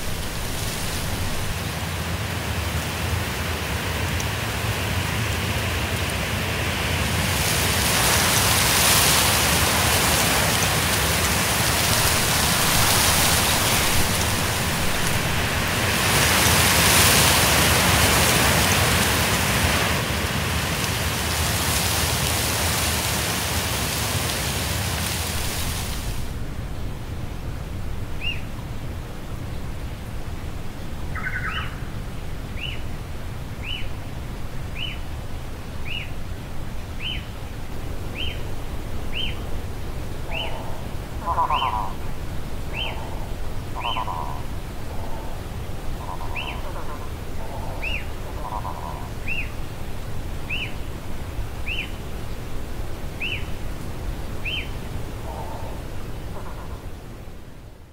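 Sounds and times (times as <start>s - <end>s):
bird call notes: 31.1s - 31.9s, 40.2s - 42.1s, 42.7s - 49.6s, 54.4s - 56.9s
bird whistling: 31.2s - 31.8s
raspy bird call: 40.3s - 42.0s, 42.8s - 45.4s.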